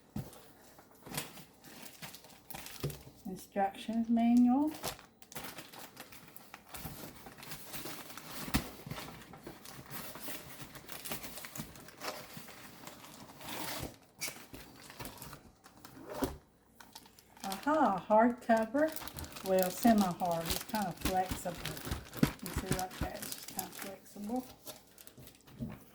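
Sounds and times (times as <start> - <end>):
plastic and paper rustling: 0.0 - 25.9.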